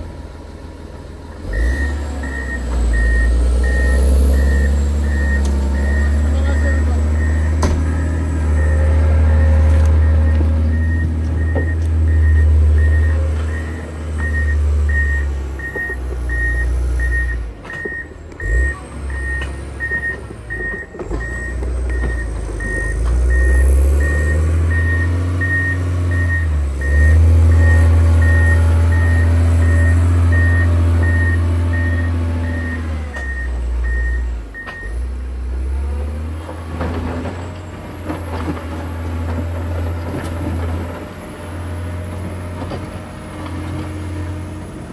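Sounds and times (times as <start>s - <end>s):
diesel engine running: 0.0s - 44.9s
reversing alarm beeping: 1.5s - 35.1s.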